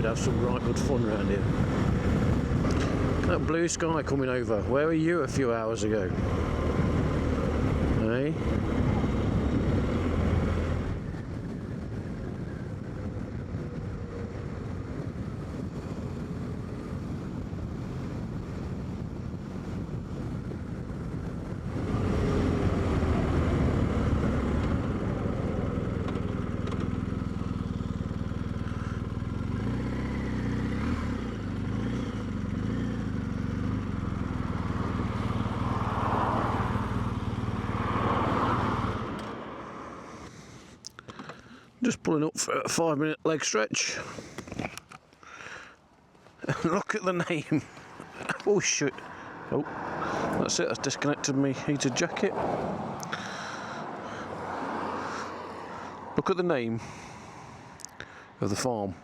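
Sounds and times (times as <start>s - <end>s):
motorcycle engine running: 6.2s - 37.8s.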